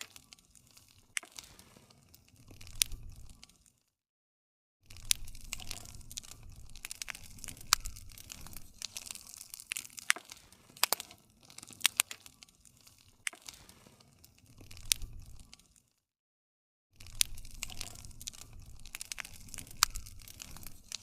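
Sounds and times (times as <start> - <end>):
campfire crackling and popping: 0.0 - 3.8, 4.9 - 15.9, 17.0 - 21.0.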